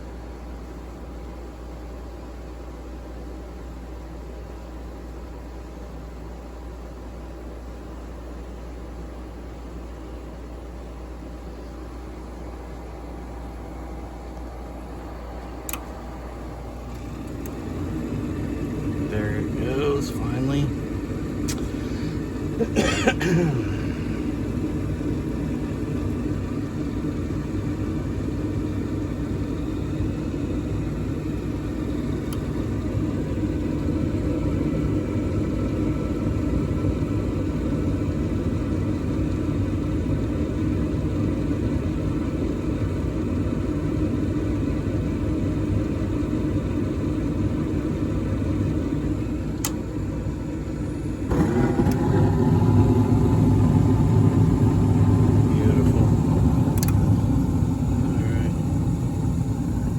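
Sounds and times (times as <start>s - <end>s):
furnace rumbling: 10.8s - 39.8s, 44.6s - 59.9s.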